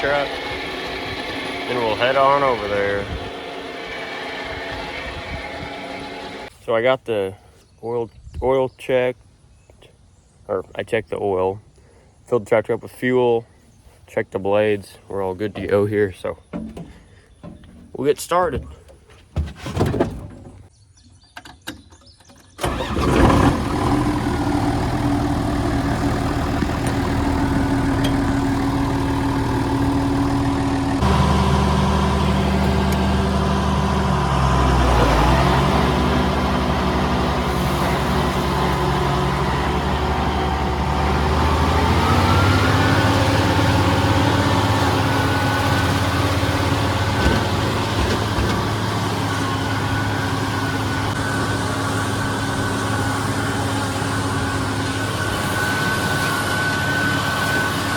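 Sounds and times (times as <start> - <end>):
tractor engine running: 0.0 - 6.5, 22.6 - 57.9.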